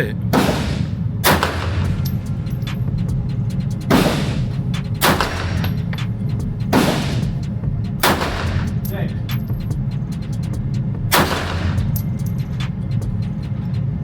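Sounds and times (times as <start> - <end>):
steady low rumble: 0.1 - 14.0
fainter gunshots cracking: 0.3 - 2.1, 3.9 - 5.7, 8.0 - 8.9, 11.1 - 11.9
loud handgun shots: 0.3 - 2.2, 3.9 - 5.7, 8.0 - 8.8, 11.1 - 11.9.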